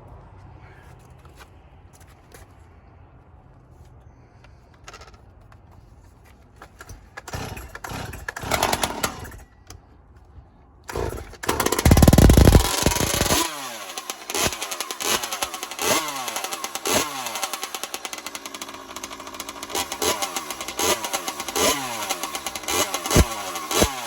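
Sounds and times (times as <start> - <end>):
motorcycle engine revving: 6.8 - 9.4, 10.9 - 24.0.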